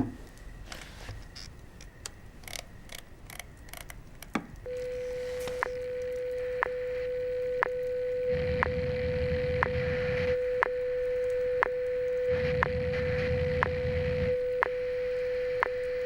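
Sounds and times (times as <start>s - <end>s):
faint crackling clicks: 0.3s - 6.8s, 8.6s - 16.0s
steady radio tone: 4.7s - 16.0s.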